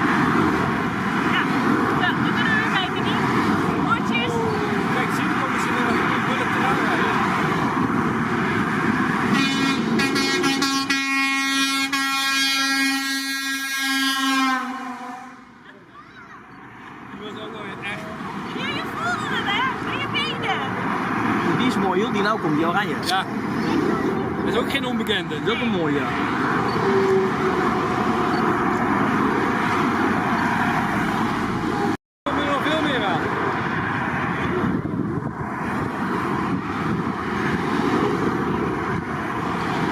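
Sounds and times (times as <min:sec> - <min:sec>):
trucks driving past: 0:00.0 - 0:39.9
higher truck horn blasts: 0:09.2 - 0:15.6
low truck horn tone: 0:09.3 - 0:15.6, 0:26.6 - 0:28.4.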